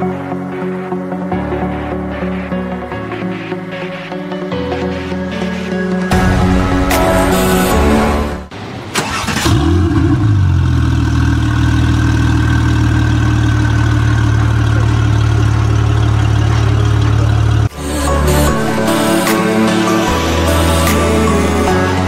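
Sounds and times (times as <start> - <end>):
car engine starting and idling: 6.1 - 21.7.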